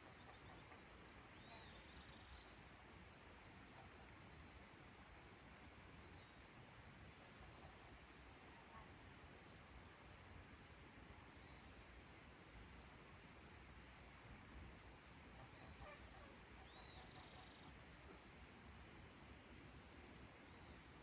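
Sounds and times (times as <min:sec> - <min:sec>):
steady high hiss: 0:00.0 - 0:21.0
distant animal calls: 0:15.4 - 0:17.8.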